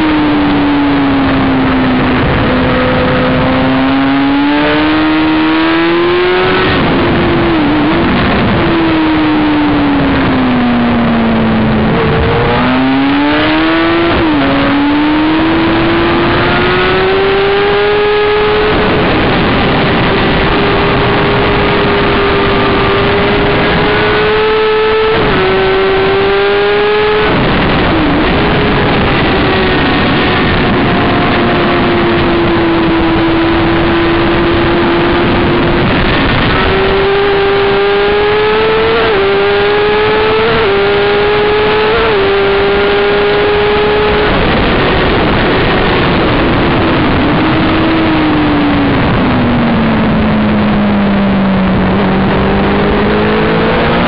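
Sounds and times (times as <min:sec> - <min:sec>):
motorcycle engine revving: 0:00.0 - 0:54.0
wind noise on microphone: 0:00.0 - 0:54.0.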